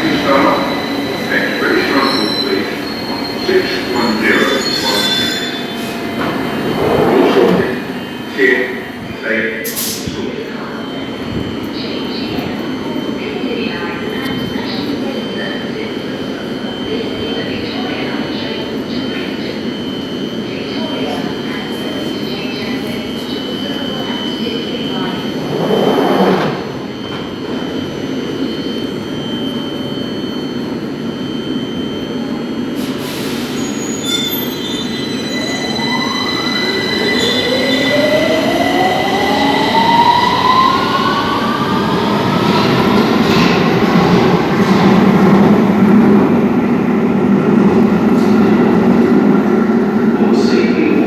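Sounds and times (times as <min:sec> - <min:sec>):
train traction motors whining: 0:23.6 - 0:29.7.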